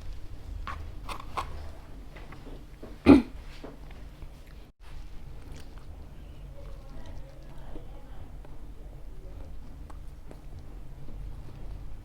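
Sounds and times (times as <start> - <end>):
loud throat sound: 3.1 - 3.4.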